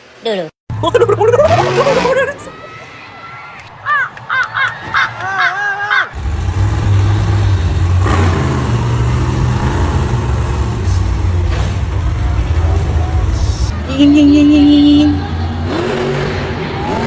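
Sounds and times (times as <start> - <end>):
high voice: 0.3 - 2.6
monster truck engine running: 6.2 - 17.0.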